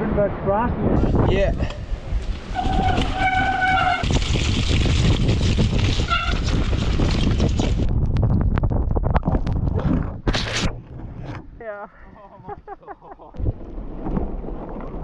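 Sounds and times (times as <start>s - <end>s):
wind and tyre rumble: 0.0s - 12.3s, 13.4s - 15.0s
bike rattling: 1.4s - 9.4s
disc brakes squealing: 2.6s - 4.1s.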